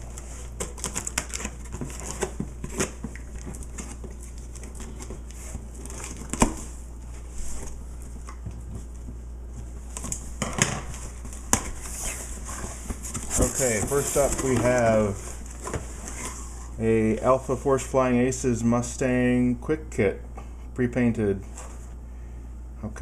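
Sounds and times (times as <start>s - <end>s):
packaging rustling and crinkling: 0.0s - 9.0s, 10.9s - 16.8s.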